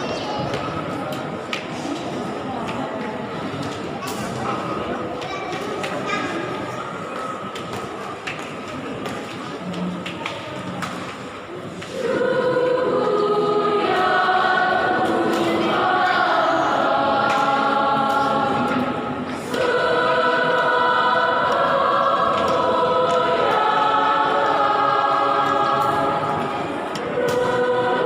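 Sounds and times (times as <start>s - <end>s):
church choir singing a hymn: 11.5s - 28.0s.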